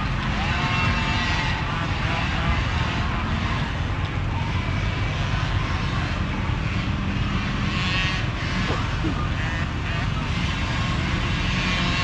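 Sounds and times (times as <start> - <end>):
small dirt bike engines buzzing: 0.0 - 12.0.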